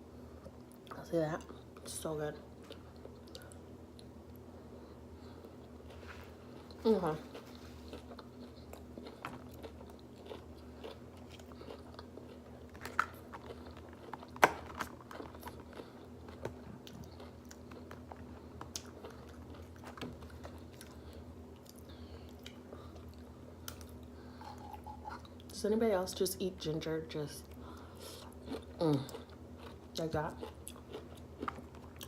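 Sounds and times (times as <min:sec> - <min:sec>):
steady low hum: 0:00.0 - 0:32.0
person chewing food: 0:02.6 - 0:25.5, 0:27.5 - 0:32.0.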